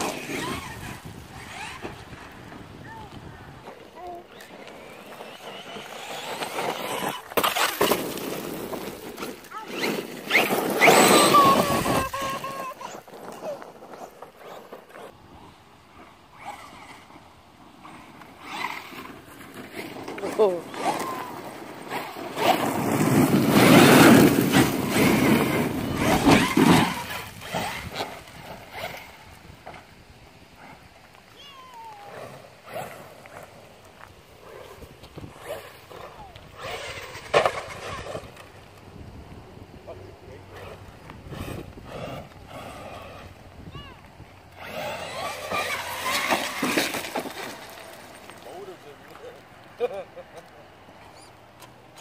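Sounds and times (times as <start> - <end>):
rc truck motor whine: 0.0 - 3.2, 4.0 - 19.6, 20.4 - 29.3, 40.5 - 47.9
tyres on gravel: 0.0 - 52.0.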